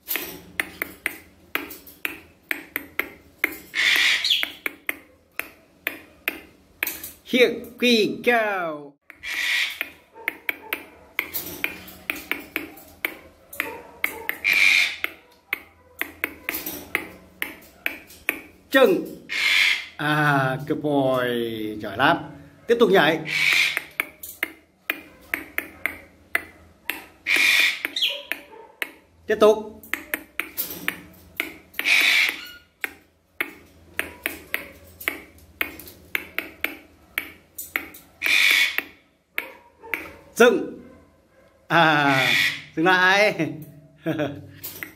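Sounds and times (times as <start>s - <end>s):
sharp rhythmic clicks: 0.0s - 7.1s, 9.0s - 19.0s, 23.4s - 29.2s, 29.8s - 40.2s
finger snaps keeping a beat: 0.2s - 3.7s, 4.4s - 7.0s, 9.8s - 18.5s, 23.5s - 27.1s, 27.8s - 29.0s, 29.8s - 38.1s, 38.8s - 40.2s.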